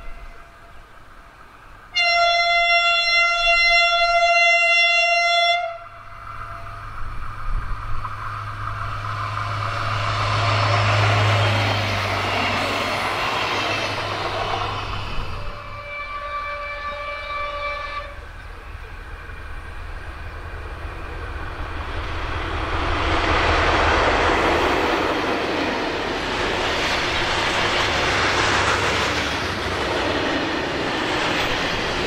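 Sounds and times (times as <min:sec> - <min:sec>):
freight train passing: 0:00.0 - 0:32.0
horn-like tone: 0:01.9 - 0:06.9, 0:15.4 - 0:18.2.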